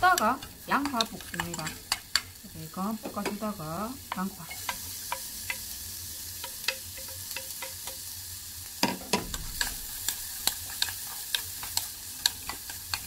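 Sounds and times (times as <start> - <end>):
bacon and onion sizzling: 0.0 - 13.0.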